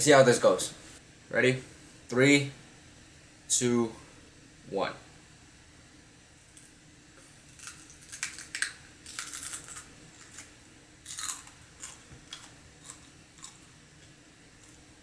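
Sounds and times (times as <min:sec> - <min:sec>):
crunching raw pepper: 0:07.4 - 0:14.8.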